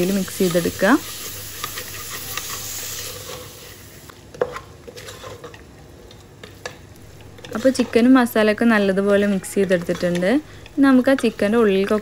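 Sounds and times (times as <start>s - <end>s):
chicken sizzling in oil: 0.0s - 4.1s
wooden spatula scraping pot: 0.1s - 3.6s, 4.4s - 5.6s, 7.1s - 8.2s, 8.9s - 12.0s.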